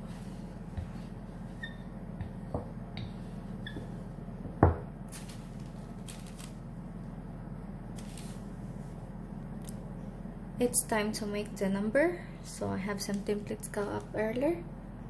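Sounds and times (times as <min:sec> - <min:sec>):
steady low hum: 0:00.0 - 0:15.0
objects knocking on work surface: 0:04.5 - 0:04.9
rustling: 0:05.1 - 0:06.6.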